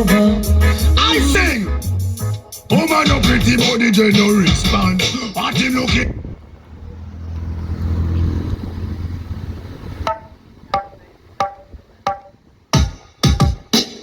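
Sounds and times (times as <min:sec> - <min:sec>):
deep bass note: 0:00.0 - 0:02.4, 0:03.1 - 0:03.6
sparse percussion beat: 0:00.0 - 0:06.1, 0:10.1 - 0:14.0.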